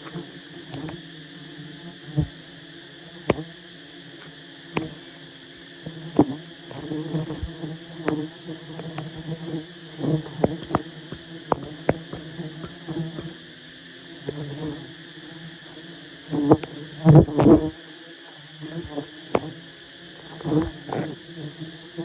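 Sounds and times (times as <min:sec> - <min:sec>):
bees buzzing: 0:00.0 - 0:04.0, 0:04.6 - 0:05.2, 0:05.8 - 0:13.5, 0:18.4 - 0:22.0
sharp clicks: 0:10.6 - 0:13.4.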